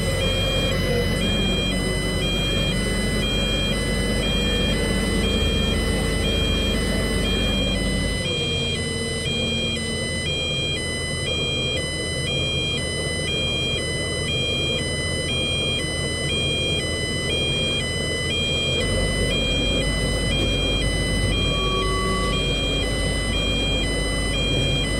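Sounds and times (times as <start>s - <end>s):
engine and traffic rumble: 0.0s - 9.6s, 18.6s - 24.9s
two-tone siren: 0.0s - 24.9s.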